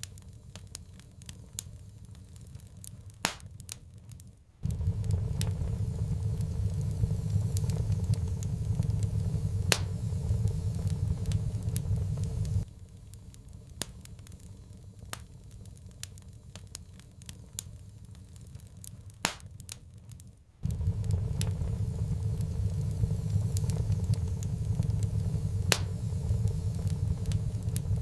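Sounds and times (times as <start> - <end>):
wood fire crackling and popping: 0.0 - 28.0
low rumble: 4.6 - 12.7, 20.6 - 28.0.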